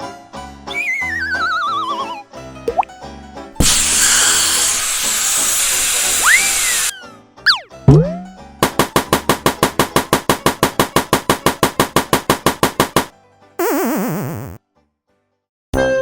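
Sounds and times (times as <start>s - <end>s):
hissing falling whistle: 0.7s - 2.2s, 6.0s - 7.0s
cartoon pitched pulses: 0.7s - 2.9s, 6.2s - 8.3s, 13.6s - 14.6s.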